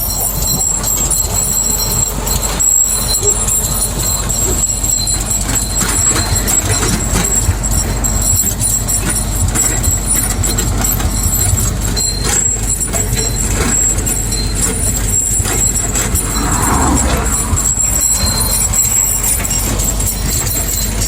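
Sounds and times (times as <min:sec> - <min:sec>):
tractor engine rumble: 0:00.0 - 0:21.0.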